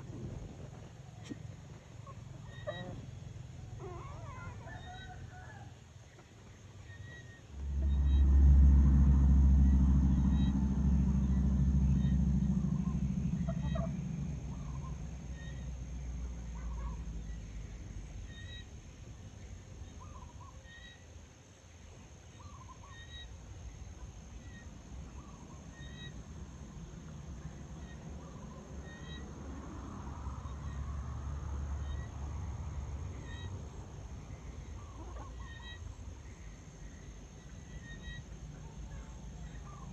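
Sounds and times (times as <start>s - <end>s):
loud low rumble: 7.4s - 20.3s
chickens clucking: 34.7s - 36.0s.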